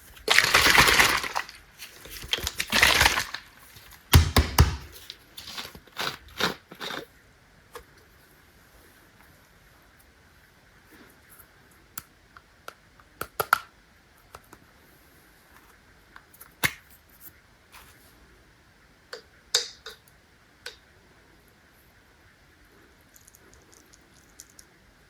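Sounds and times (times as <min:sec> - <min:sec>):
louder knocks: 0:04.1 - 0:04.9.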